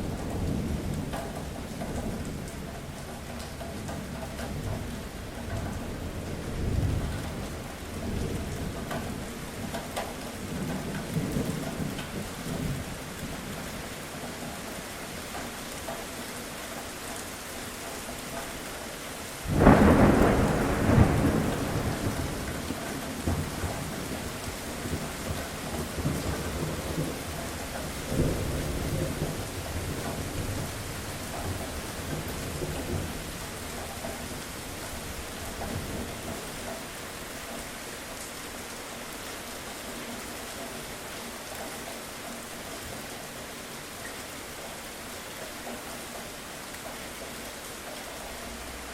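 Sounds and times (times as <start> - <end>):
steady rain: 0.0 - 48.9
rolling thunder: 19.4 - 34.3
sharp thunderclap: 19.5 - 23.8.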